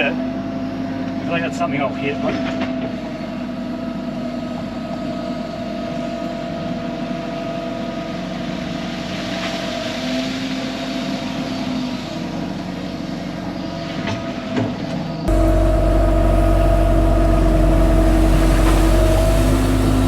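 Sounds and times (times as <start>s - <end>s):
excavator engine running: 15.3s - 20.0s
steady whine: 15.3s - 20.0s.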